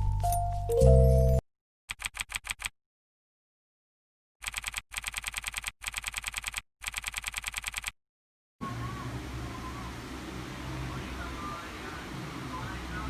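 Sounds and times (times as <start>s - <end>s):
typing on computer keyboard: 1.9s - 2.7s, 4.4s - 8.0s.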